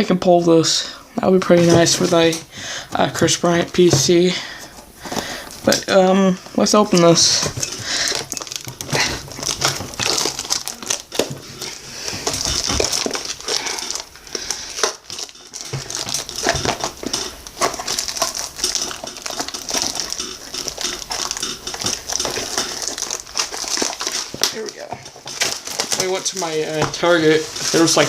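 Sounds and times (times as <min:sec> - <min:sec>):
packaging crinkling and rustling: 0:01.2 - 0:28.0.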